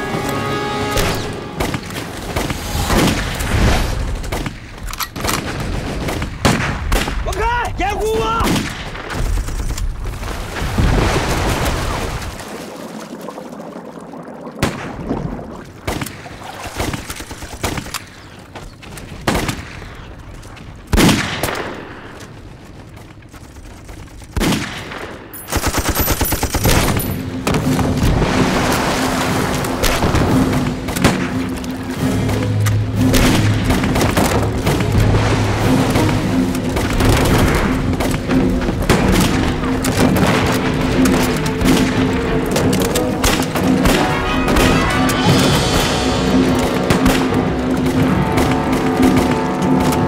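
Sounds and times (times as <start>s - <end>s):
people shouting: 44.0s - 45.9s.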